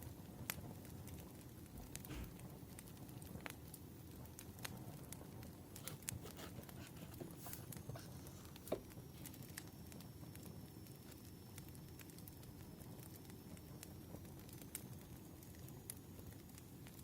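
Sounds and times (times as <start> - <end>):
firewood crackling: 0.5 - 13.6.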